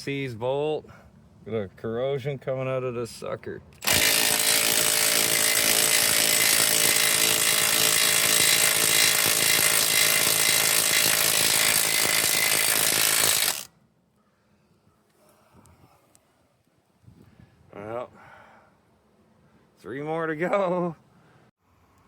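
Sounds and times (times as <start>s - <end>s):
power tool running: 3.8s - 13.7s.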